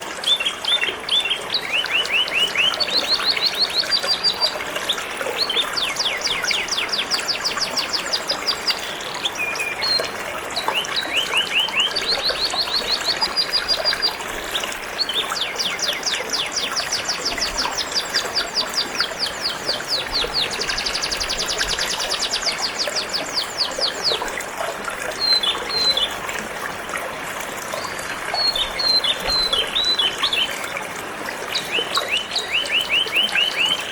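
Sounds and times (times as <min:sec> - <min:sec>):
water trickling: 0:00.0 - 0:33.9
canary singing rapid trills: 0:28.3 - 0:30.6, 0:31.5 - 0:33.9.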